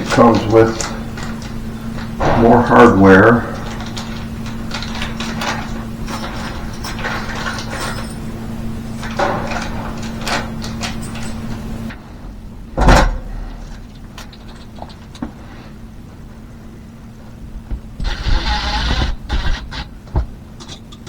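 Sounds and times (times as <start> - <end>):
hardware clicks and rattles: 0.0 - 12.0, 12.8 - 15.5, 17.7 - 21.0
steady hum: 0.0 - 21.0
loud knock: 2.2 - 2.8.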